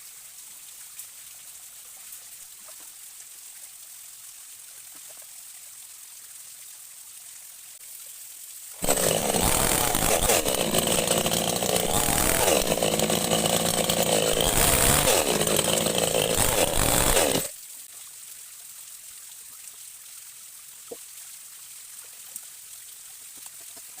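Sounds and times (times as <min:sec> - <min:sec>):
faint steady hiss: 0:00.0 - 0:08.8, 0:17.5 - 0:24.0
chainsaw engine running: 0:08.8 - 0:17.5.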